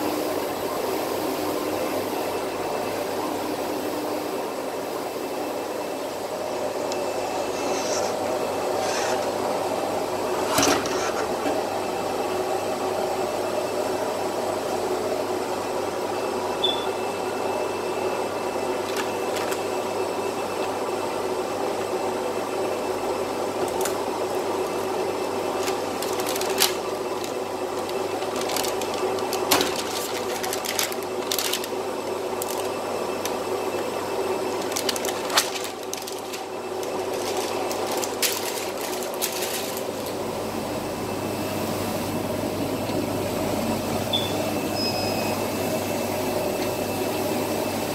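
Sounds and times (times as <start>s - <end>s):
printer mechanical hum: 0.0s - 47.9s
paper film peeling crackles: 25.5s - 33.4s, 34.5s - 40.2s.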